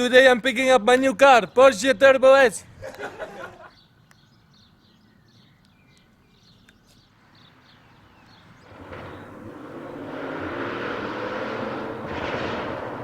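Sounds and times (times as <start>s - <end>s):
car engine: 8.5s - 13.0s.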